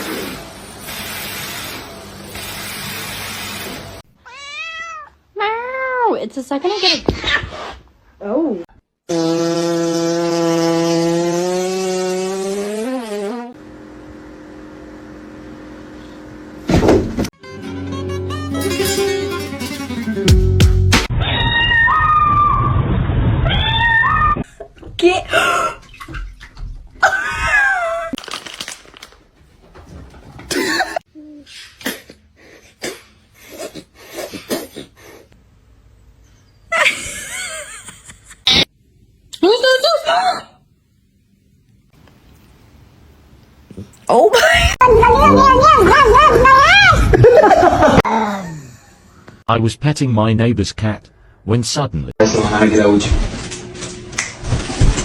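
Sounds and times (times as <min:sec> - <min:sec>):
cat yowling: 0:04.2 - 0:05.1, 0:21.1 - 0:22.8, 0:23.4 - 0:24.4
pet animal crying: 0:04.2 - 0:05.2, 0:21.1 - 0:22.7.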